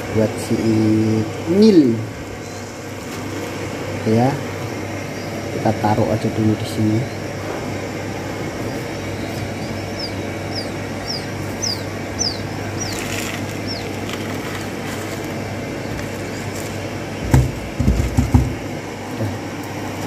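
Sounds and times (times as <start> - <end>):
steady low hum: 0.0 - 20.0
small bird chirping: 5.0 - 6.0, 8.1 - 16.7
knocks: 17.2 - 18.6.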